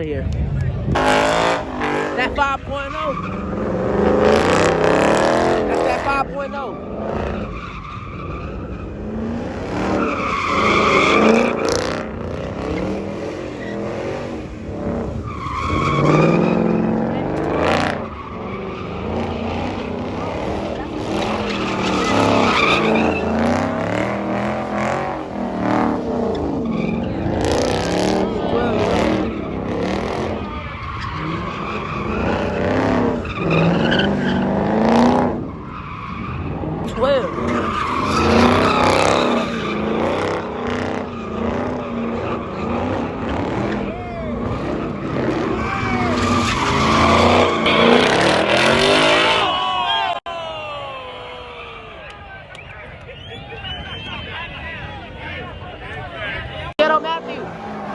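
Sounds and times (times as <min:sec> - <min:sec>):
car engine revving hard: 0:00.6 - 0:49.7
tyres squealing: 0:01.0 - 0:12.0, 0:15.2 - 0:50.2.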